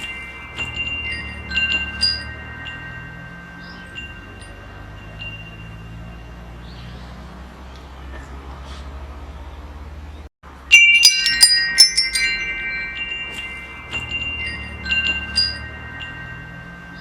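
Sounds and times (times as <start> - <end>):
metal wind chimes ringing: 0.0 - 7.4, 10.5 - 17.0.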